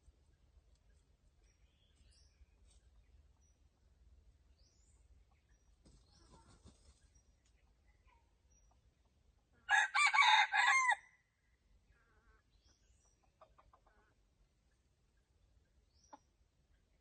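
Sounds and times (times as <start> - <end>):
rooster crowing: 9.7 - 11.0.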